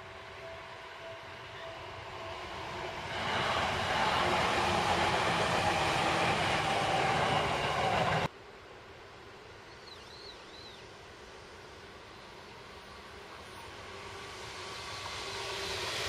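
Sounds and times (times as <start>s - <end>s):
electric train rumbling past: 0.0s - 8.3s, 10.5s - 16.0s.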